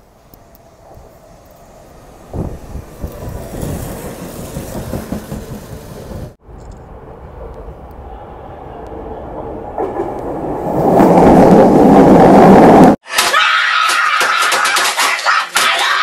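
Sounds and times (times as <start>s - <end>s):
electric train rumbling: 0.0s - 13.0s
person screaming loudly: 13.1s - 16.0s.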